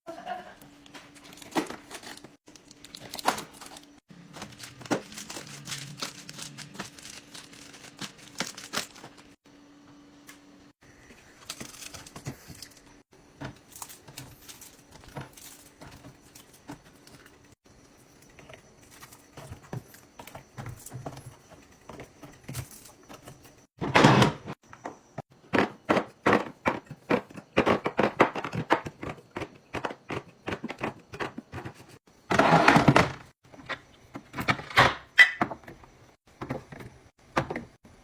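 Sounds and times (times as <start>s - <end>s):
plastic packaging crinkling: 1.2s - 9.4s.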